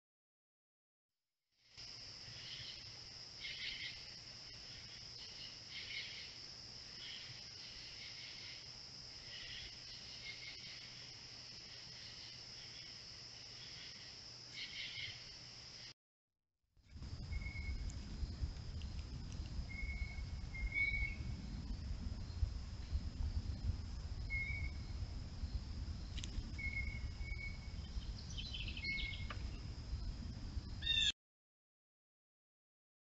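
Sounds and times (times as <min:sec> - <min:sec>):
bird chirping: 0:03.4 - 0:06.4, 0:13.6 - 0:15.2, 0:19.7 - 0:21.4, 0:26.6 - 0:29.7, 0:30.8 - 0:31.1
low rumble: 0:16.9 - 0:30.8.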